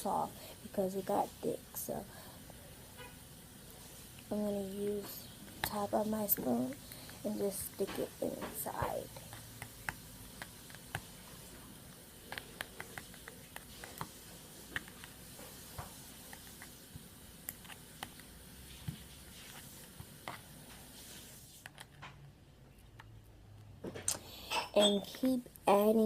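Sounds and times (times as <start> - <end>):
spoon stirring slime: 3.8 - 22.0.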